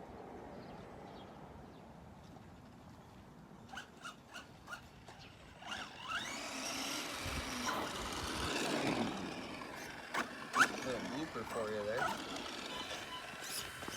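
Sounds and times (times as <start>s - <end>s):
electric motor whining: 3.7s - 13.9s.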